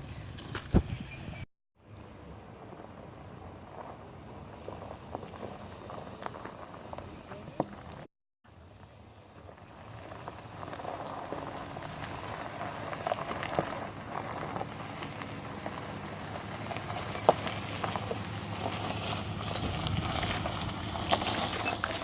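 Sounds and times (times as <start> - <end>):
engine low hum: 0.0 - 22.0
tyres crunching over gravel: 3.5 - 8.1, 9.3 - 22.0.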